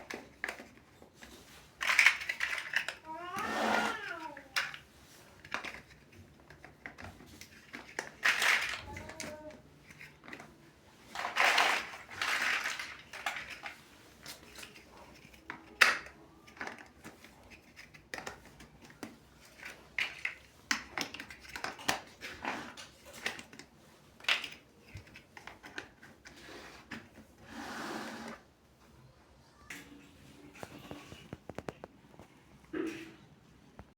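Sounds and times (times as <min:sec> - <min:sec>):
plastic bricks rustling: 0:00.0 - 0:27.5
plastic bricks clicking: 0:01.8 - 0:04.8, 0:05.4 - 0:10.5, 0:11.1 - 0:22.3.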